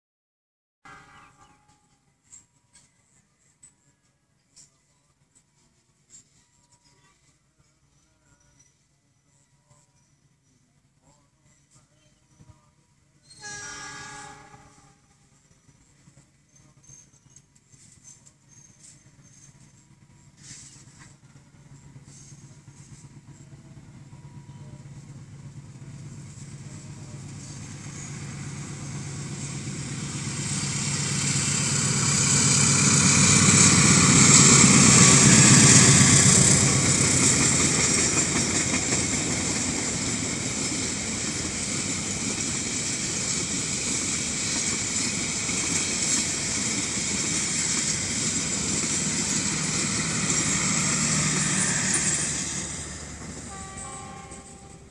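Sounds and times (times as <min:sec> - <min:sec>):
diesel locomotive engine hum: 0:00.9 - 0:54.9
train wheels rumbling on rails: 0:13.2 - 0:54.9.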